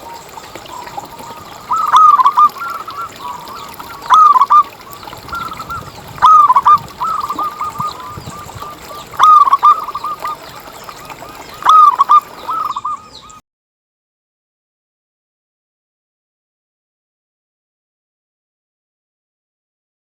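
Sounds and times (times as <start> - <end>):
dove cooing: 0.0 - 13.2.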